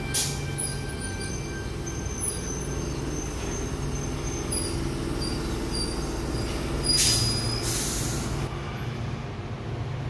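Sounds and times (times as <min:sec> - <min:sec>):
wheels squealing on rails: 0:00.0 - 0:09.2
electric train rumbling past: 0:00.0 - 0:10.0
short loud hisses: 0:07.0 - 0:08.4.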